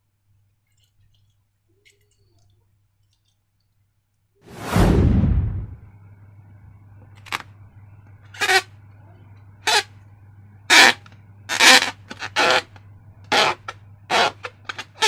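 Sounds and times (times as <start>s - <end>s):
slime balloons squelching: 13.3s - 15.0s.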